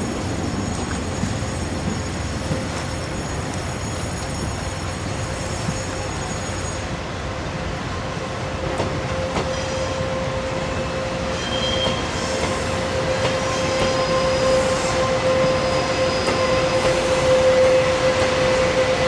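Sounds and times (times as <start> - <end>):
train moving on rails: 0.0 - 19.0
brief higher squeals: 11.3 - 12.7
wheels squealing: 11.3 - 19.0.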